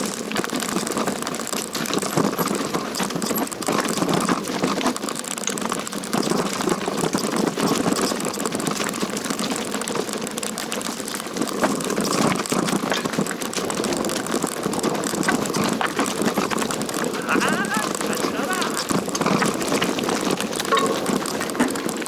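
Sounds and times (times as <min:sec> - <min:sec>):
bike rattling over rocky trail: 0:18.8 - 0:22.0.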